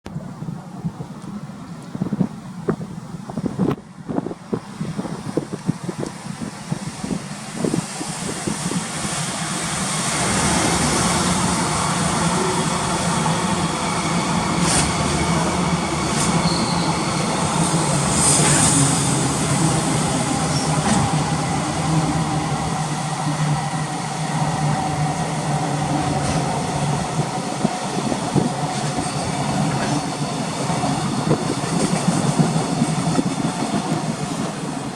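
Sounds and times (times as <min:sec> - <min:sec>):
freight train wheels rumbling: 0:00.1 - 0:34.9
wheel squeals and clanks: 0:16.2 - 0:17.2.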